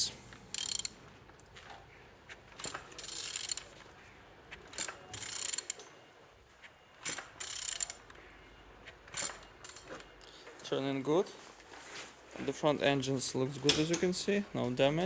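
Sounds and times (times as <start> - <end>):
ratchet wrench clicking: 0.5 - 1.0, 2.6 - 3.7, 4.8 - 5.8, 7.0 - 8.0.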